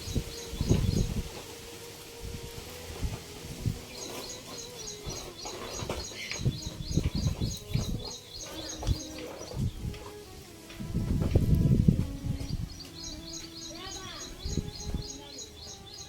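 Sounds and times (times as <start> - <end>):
bird chirping rapidly: 0.0 - 1.3, 3.8 - 9.8, 12.7 - 16.0
low rumbling and thumps: 0.0 - 1.4, 2.3 - 10.1, 10.8 - 13.4.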